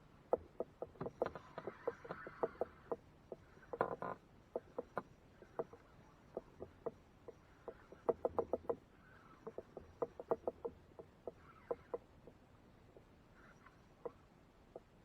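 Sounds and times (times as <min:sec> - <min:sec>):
light knocks and taps: 0:00.3 - 0:08.8.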